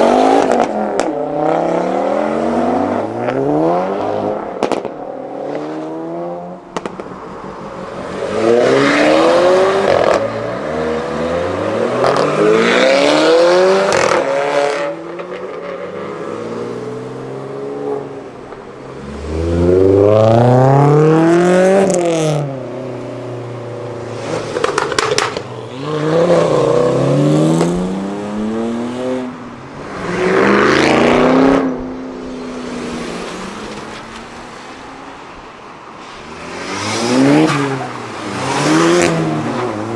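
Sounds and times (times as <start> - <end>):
cars accelerating hard: 0.0 - 34.4, 36.0 - 39.9
sharp cracks: 6.7 - 7.6, 24.5 - 25.6.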